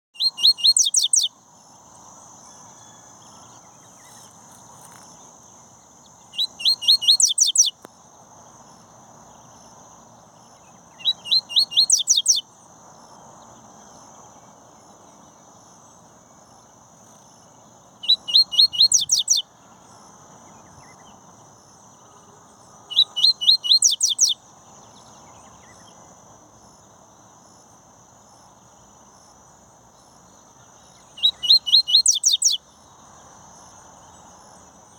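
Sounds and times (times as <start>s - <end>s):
seedeater bird singing: 0.2s - 1.4s, 6.0s - 7.8s, 10.5s - 12.4s, 18.0s - 19.5s, 22.9s - 26.0s, 30.6s - 32.6s.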